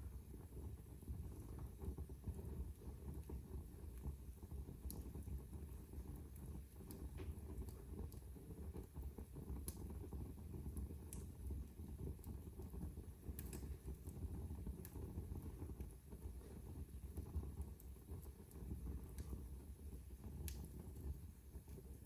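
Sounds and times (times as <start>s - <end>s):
fire crackling and popping: 0.0s - 22.0s
fire flames rumbling: 0.0s - 22.0s.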